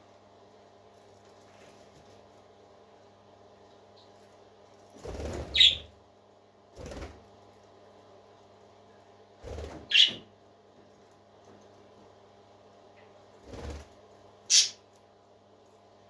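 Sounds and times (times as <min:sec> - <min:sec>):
parakeet chirps: 0:05.5 - 0:05.9, 0:09.9 - 0:10.3, 0:14.5 - 0:14.8.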